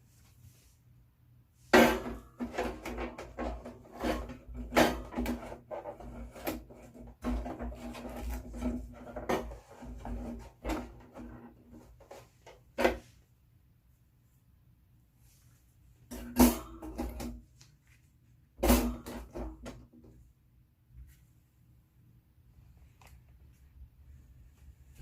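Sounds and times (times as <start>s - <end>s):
knocks and clatter of handled objects: 1.7s - 13.2s, 16.1s - 18.0s.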